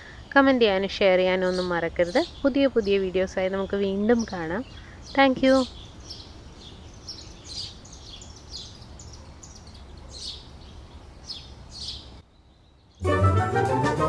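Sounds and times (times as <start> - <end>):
small bird chirping: 1.2 - 13.0
chiming jingle: 13.0 - 14.0.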